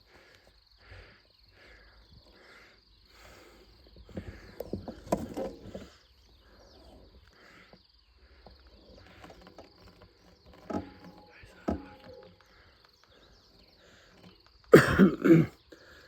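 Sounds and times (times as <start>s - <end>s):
insects trilling: 0.0s - 16.0s
knocks and rustling: 4.0s - 6.0s, 8.9s - 12.6s.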